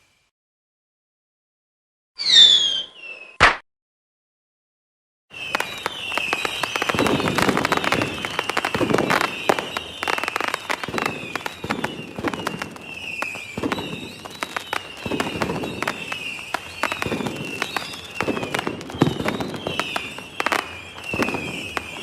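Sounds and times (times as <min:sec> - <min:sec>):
firework whistles: 0:00.0 - 0:00.3, 0:02.2 - 0:03.6, 0:05.3 - 0:22.0
deep firework bursts: 0:05.3 - 0:22.0
fireworks crackling pops: 0:05.3 - 0:22.0.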